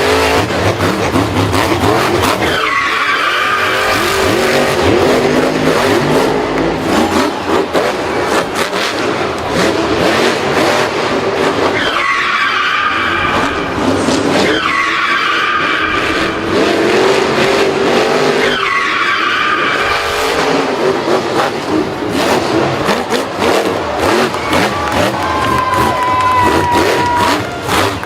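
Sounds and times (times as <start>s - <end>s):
racing engines revving: 0.0s - 28.0s
tyres skidding: 0.0s - 28.0s.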